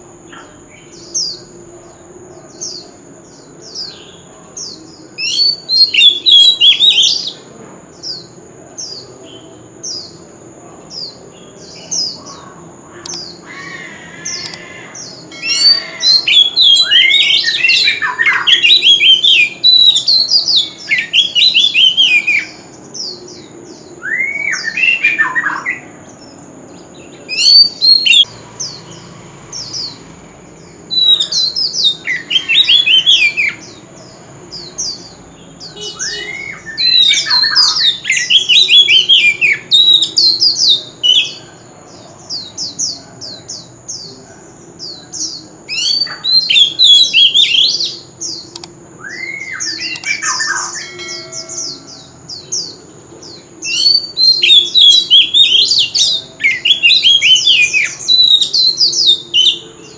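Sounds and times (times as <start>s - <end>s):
bird singing whistled phrases: 5.2s - 7.3s, 13.0s - 22.7s, 24.0s - 25.9s, 27.3s - 28.3s, 30.9s - 33.7s, 35.6s - 41.4s, 45.7s - 51.9s, 53.7s - 59.7s.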